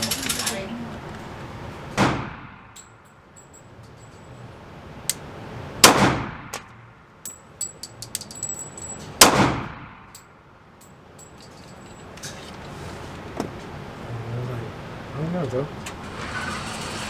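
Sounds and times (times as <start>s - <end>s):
sharp clicks and clinks: 0.0s - 0.7s, 6.6s - 9.2s
pistol shots echoing: 5.8s - 6.7s, 9.2s - 10.0s.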